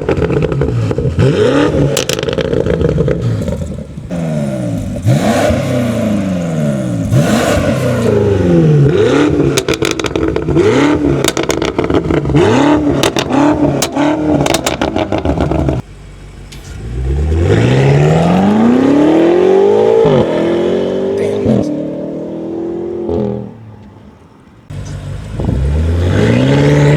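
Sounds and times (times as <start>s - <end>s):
exhaust cracks: 0.0s - 20.4s
car engine revving: 0.0s - 26.9s.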